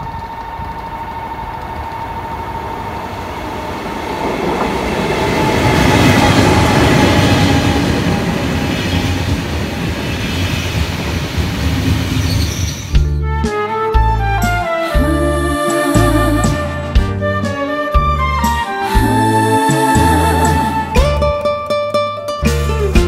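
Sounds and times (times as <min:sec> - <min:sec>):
train whine falling in pitch: 0:00.0 - 0:12.8
train wheels rushing on rails: 0:00.0 - 0:13.1.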